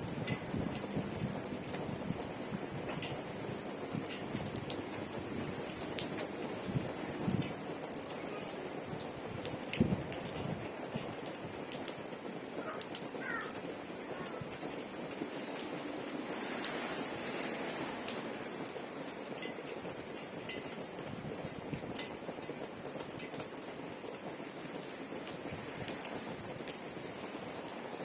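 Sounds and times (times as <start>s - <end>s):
steady rainfall: 0.0s - 28.0s
raindrop ticks: 0.1s - 15.8s, 18.0s - 27.9s.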